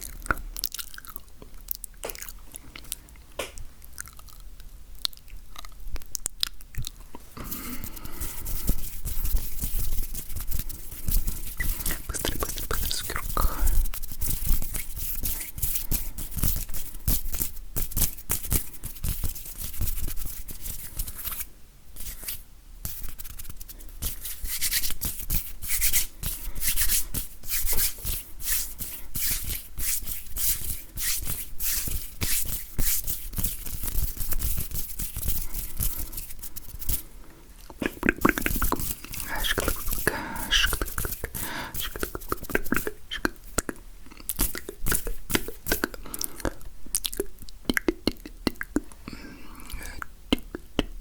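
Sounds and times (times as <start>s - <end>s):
hands rubbing and tapping: 7.4s - 37.0s, 37.8s - 46.0s.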